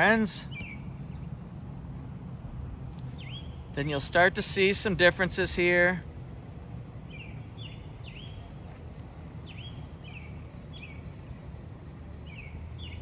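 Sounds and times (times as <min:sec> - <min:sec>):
low outdoor rumble: 0:00.0 - 0:13.0
small bird chirping: 0:03.0 - 0:03.6, 0:06.6 - 0:11.2, 0:12.2 - 0:13.0.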